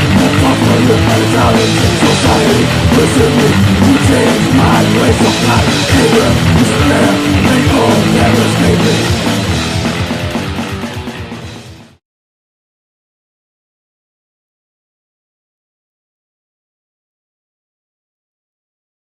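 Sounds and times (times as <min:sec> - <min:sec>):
heavy metal music: 0:00.0 - 0:12.0.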